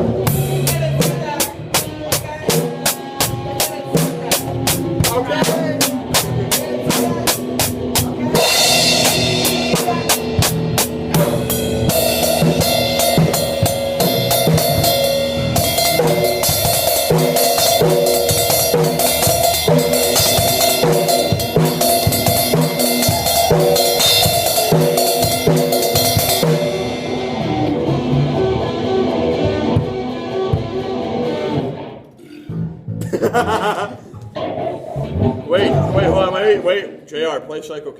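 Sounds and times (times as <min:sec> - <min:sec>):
band playing loudly: 0:00.0 - 0:36.8
guitar: 0:00.0 - 0:37.8
cymbals ringing: 0:08.4 - 0:27.1.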